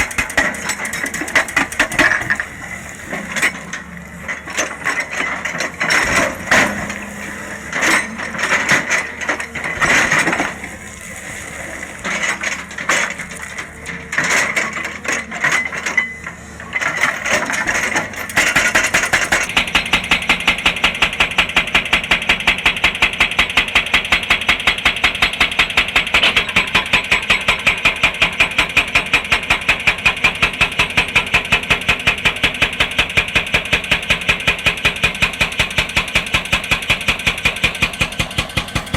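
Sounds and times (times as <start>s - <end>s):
rock and steel clanking and scraping: 0.0s - 21.6s
hydraulic rock breaker hammering: 0.0s - 38.9s.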